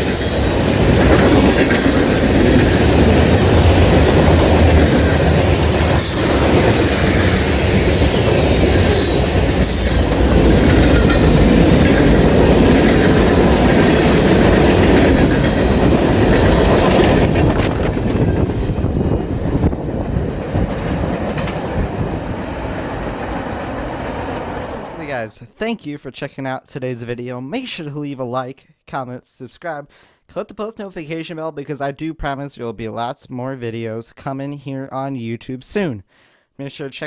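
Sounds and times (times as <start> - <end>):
high wheel squeals: 0.0 - 2.6, 5.4 - 14.3
train wheels clacking over rail joints: 0.0 - 22.9.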